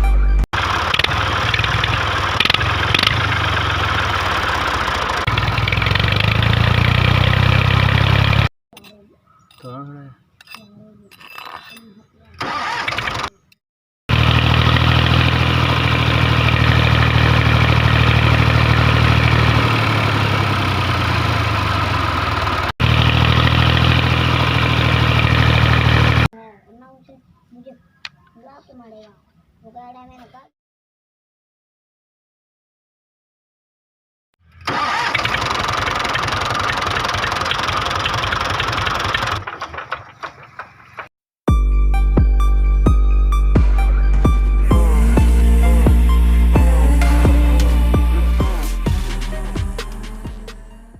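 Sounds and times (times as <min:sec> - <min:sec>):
music: 0:00.0 - 0:00.5, 0:41.5 - 0:50.9
small tractor engine idling: 0:00.6 - 0:08.5, 0:14.1 - 0:26.3, 0:34.6 - 0:40.9.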